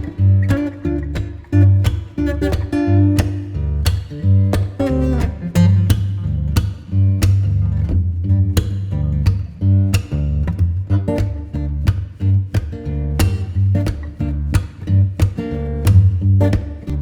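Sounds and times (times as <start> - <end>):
bass line: 0.0 - 17.0
plucked guitar music with beat: 0.0 - 17.0.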